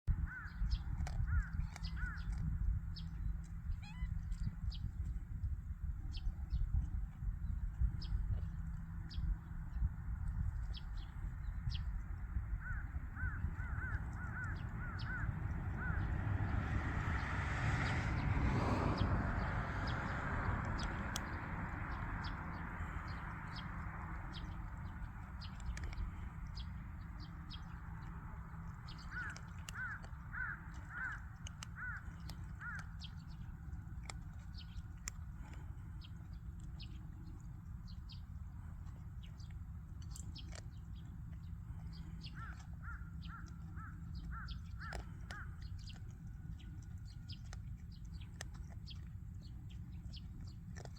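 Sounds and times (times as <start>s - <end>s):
steady low rumble: 0.1s - 50.9s
bird calling: 29.0s - 31.2s.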